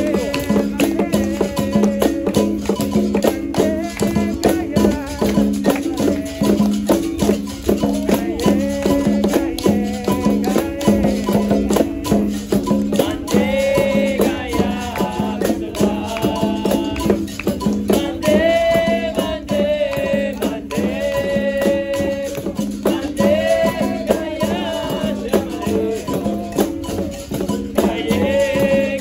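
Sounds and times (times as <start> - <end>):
person singing long notes: 0.0 - 7.0
berimbau: 0.0 - 29.0
hand percussion strokes: 0.0 - 29.0.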